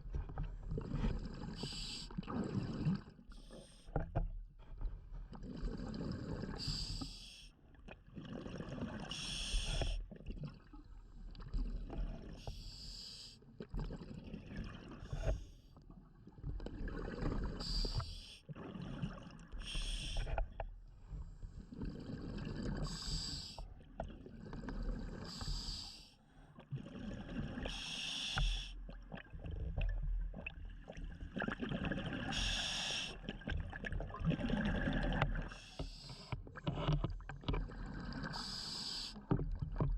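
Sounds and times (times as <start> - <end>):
regulator inhale hiss: 6.6 - 7.4, 9.1 - 10.0, 17.6 - 18.4, 19.6 - 20.4, 22.8 - 23.6, 25.2 - 26.2, 27.7 - 28.8, 32.3 - 33.2, 38.3 - 39.3
exhale bubbling underwater: 26.8 - 36.3.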